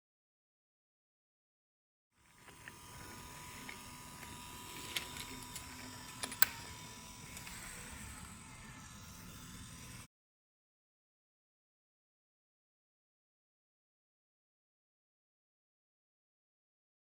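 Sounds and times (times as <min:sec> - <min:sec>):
toy train motor whirring: 0:02.2 - 0:10.1
sharp clicks of toy train: 0:02.5 - 0:08.4.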